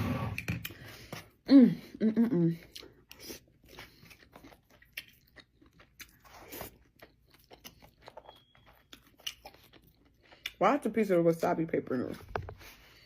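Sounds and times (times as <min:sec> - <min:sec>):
person chewing food: 0:00.3 - 0:10.6.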